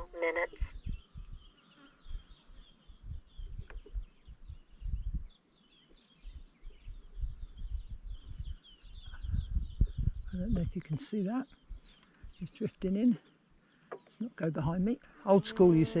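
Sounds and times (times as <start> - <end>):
wind buffeting microphone: 0.0 - 5.4, 6.2 - 11.0.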